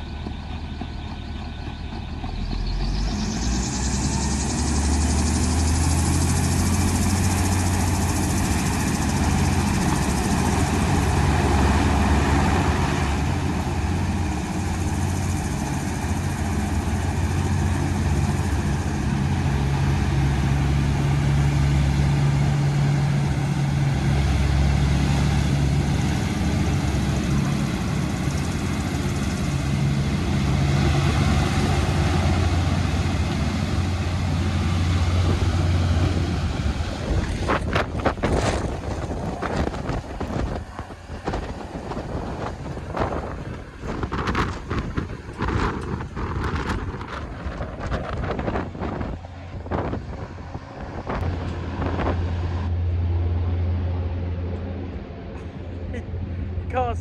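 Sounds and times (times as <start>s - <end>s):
hovercraft engine hum: 0.0s - 57.0s.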